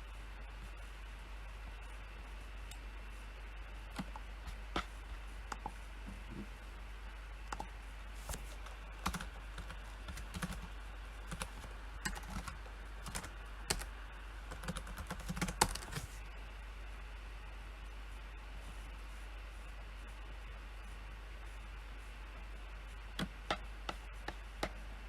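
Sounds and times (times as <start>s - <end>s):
steady low hum: 0.0s - 25.0s
typing on computer keyboard: 9.0s - 10.7s, 11.3s - 13.9s, 14.5s - 16.0s.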